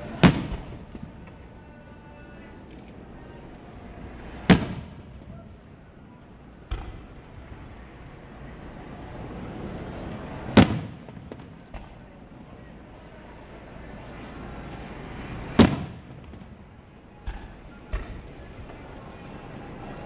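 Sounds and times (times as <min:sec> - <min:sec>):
firework shells bursting: 0:04.1 - 0:05.4, 0:09.8 - 0:12.2, 0:14.6 - 0:19.5.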